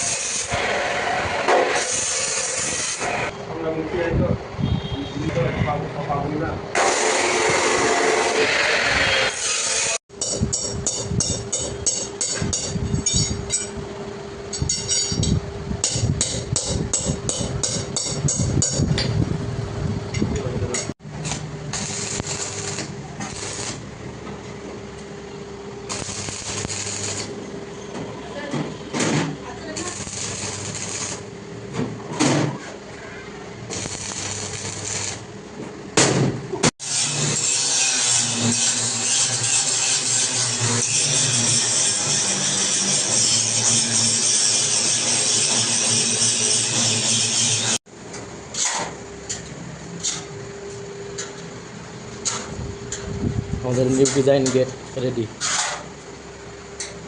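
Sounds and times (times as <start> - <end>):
welding arc sizzling: 0.0 - 3.4, 6.7 - 13.7, 20.6 - 24.1, 25.8 - 27.5, 29.5 - 31.6, 33.6 - 35.6, 36.8 - 47.8
steady hum: 10.1 - 36.7.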